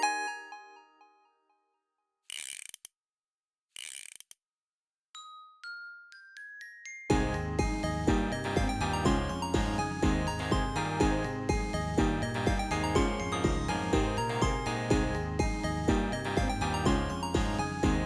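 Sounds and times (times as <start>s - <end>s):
glockenspiel-like bell notes: 5.2s - 18.0s
backing music track: 7.1s - 18.0s.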